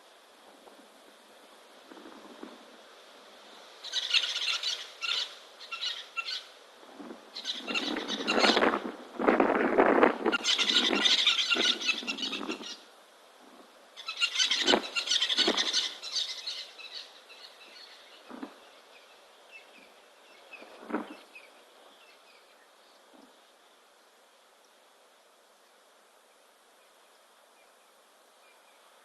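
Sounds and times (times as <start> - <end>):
shrill chattering animal calls: 7.4 - 8.8, 10.3 - 12.8, 14.0 - 17.6.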